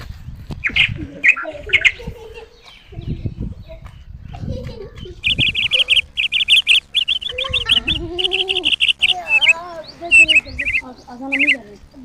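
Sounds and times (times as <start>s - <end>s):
small birds chirping: 0.4s - 12.0s
lower arching bird call: 5.2s - 11.6s.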